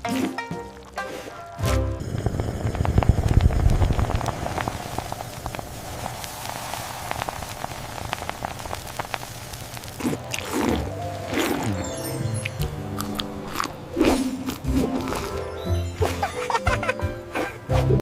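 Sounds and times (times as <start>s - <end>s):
wet crackling and popping: 2.0s - 15.4s.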